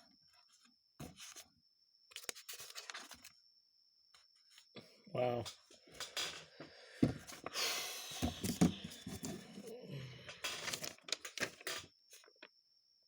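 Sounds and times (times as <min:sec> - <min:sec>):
crinkling and rustling of parts: 0:02.1 - 0:03.3, 0:08.2 - 0:09.7, 0:10.3 - 0:12.5.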